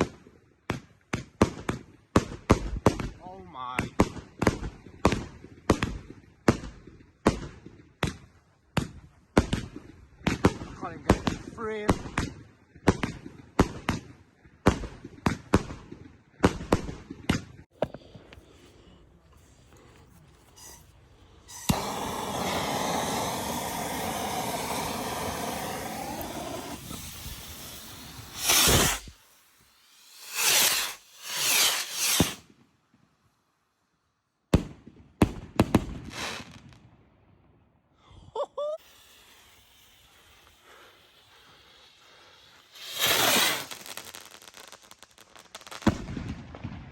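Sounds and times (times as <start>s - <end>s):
hissing crackle: 19.4s - 32.5s, 38.8s - 45.9s
fireworks bangs: 21.4s - 32.6s, 34.5s - 36.9s, 38.8s - 46.9s.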